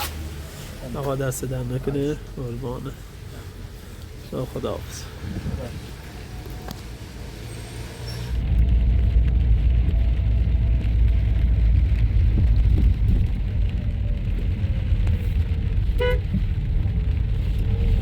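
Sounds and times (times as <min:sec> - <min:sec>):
vehicle engine rumble and road noise: 0:00.0 - 0:18.0
short horn beep: 0:16.0 - 0:16.3.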